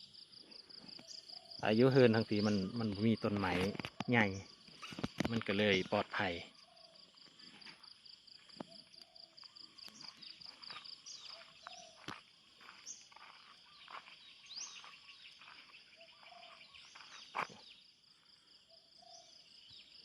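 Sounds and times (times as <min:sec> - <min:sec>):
insects trilling: 0:00.0 - 0:20.0
short bird calls: 0:12.8 - 0:17.9.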